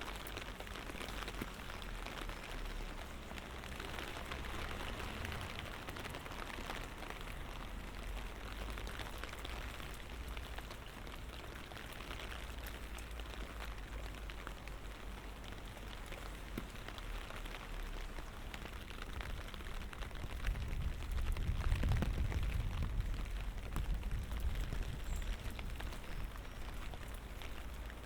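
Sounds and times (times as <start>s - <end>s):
light rain falling: 0.0s - 28.0s.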